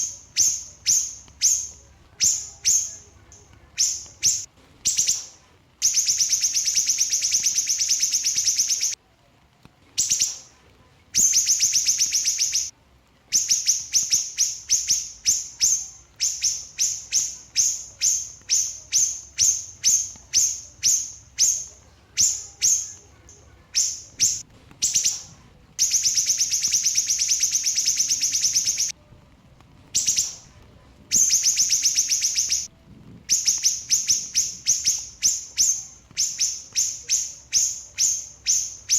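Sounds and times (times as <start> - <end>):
songbird rattling chirps: 3.8 - 9.0, 11.2 - 12.7, 25.8 - 28.9, 31.1 - 32.7.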